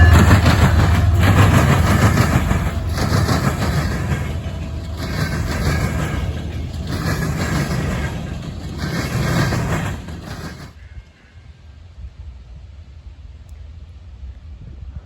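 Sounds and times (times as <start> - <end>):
locomotive engine hum: 0.0 - 11.2
train wheels clattering on rails: 0.0 - 11.2.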